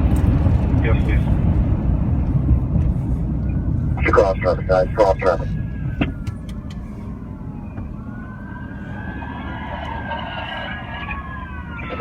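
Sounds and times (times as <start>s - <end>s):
vehicle and road rumble: 0.0s - 12.0s
police sirens wailing: 3.4s - 12.0s.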